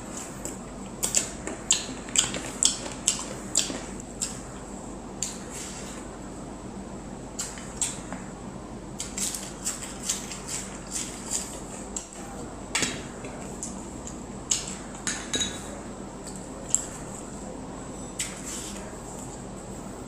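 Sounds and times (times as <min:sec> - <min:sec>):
tableware clinking: 0:15.0 - 0:15.7.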